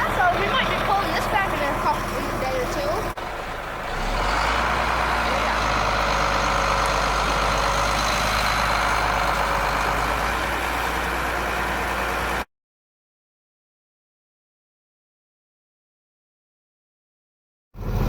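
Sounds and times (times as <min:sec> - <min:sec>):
heavy truck engine hum: 0:00.0 - 0:12.5, 0:17.8 - 0:18.0
road noise: 0:00.0 - 0:12.5, 0:17.8 - 0:18.0.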